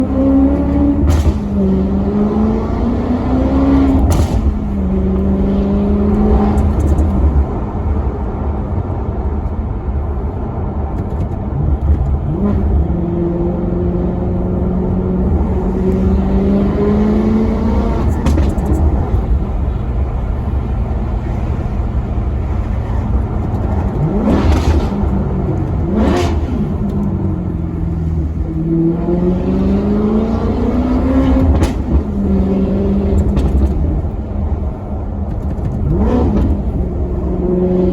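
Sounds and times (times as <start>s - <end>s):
car engine accelerating: 0.0s - 37.9s.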